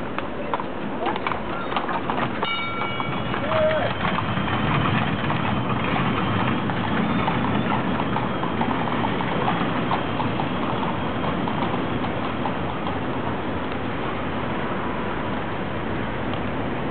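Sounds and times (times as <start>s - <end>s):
horse hooves clip-clopping: 0.0s - 14.6s
street noise: 0.0s - 16.9s.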